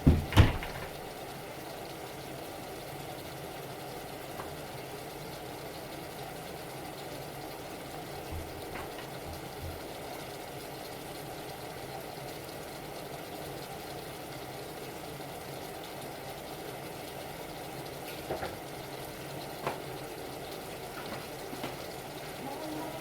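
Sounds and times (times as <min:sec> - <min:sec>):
soft knocks: 0:00.0 - 0:01.0
stovetop cooking rushing noise: 0:00.0 - 0:23.0.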